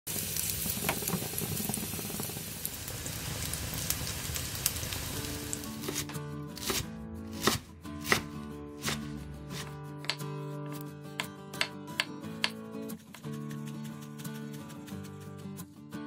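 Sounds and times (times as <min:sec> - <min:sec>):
pancakes sizzling in oil: 0:00.1 - 0:05.7
knife chopping on wooden board: 0:05.8 - 0:13.6.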